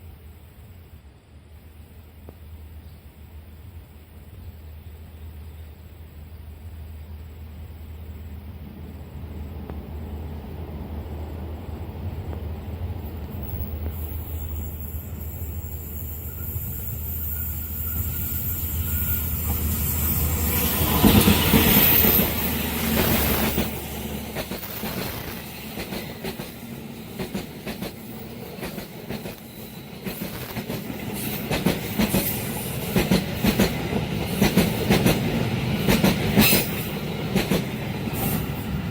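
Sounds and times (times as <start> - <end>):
train wheels clacking on rails: 13.2 - 38.9.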